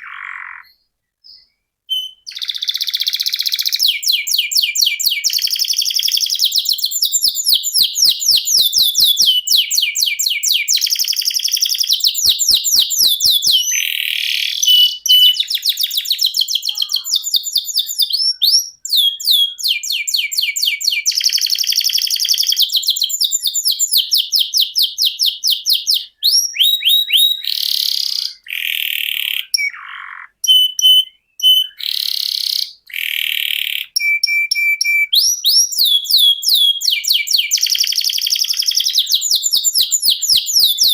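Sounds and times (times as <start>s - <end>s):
canary singing trills: 0.0s - 40.9s
harsh buzzy bird phrases: 1.9s - 20.0s, 26.8s - 34.0s.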